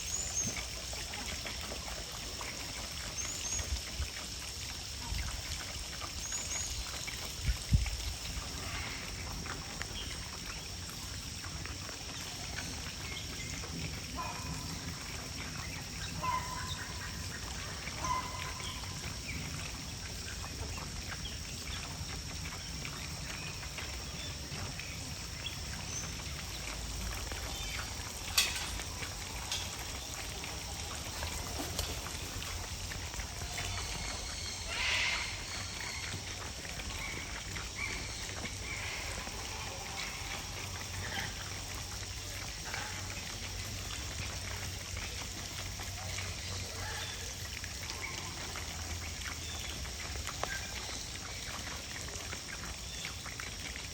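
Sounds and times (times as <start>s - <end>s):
outdoor background noise: 0.0s - 53.9s.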